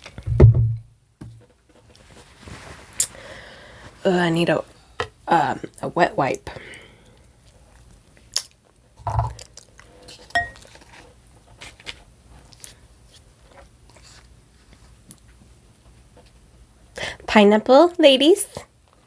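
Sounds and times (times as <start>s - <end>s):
soft thump: 0.3s - 1.4s
tableware clicks and taps: 10.4s - 10.6s.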